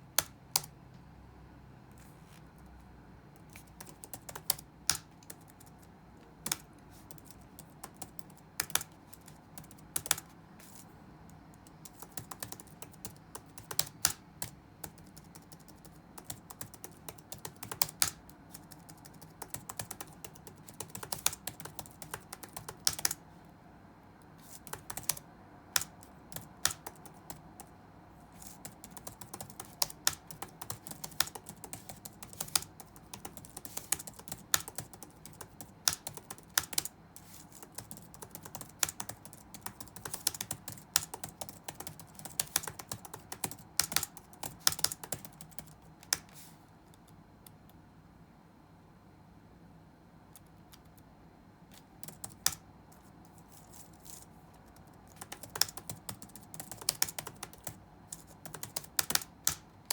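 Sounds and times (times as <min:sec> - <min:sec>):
computer keyboard typing: 0:00.0 - 0:00.8, 0:03.4 - 0:23.2, 0:24.4 - 0:27.8, 0:28.4 - 0:46.3, 0:51.7 - 0:59.9
faint steady low hum: 0:00.0 - 0:59.9.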